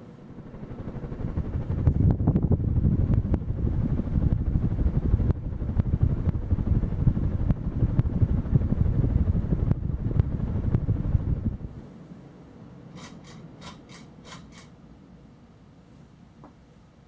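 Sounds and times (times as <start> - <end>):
fan draft buffeting microphone: 0.0 - 12.2.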